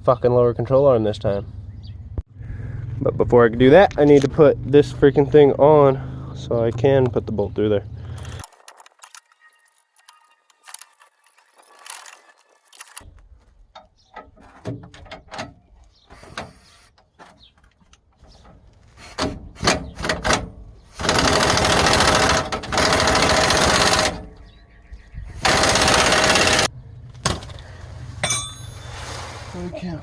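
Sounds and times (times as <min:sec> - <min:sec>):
impact wrench running: 0:21.0 - 0:24.2, 0:25.4 - 0:26.7.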